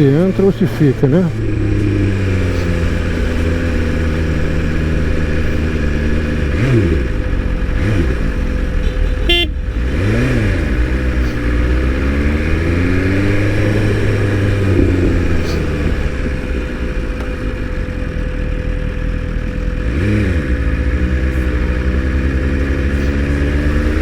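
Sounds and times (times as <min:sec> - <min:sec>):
motorcycle engine running: 0:00.0 - 0:24.0
vehicle horn toot: 0:08.7 - 0:09.8.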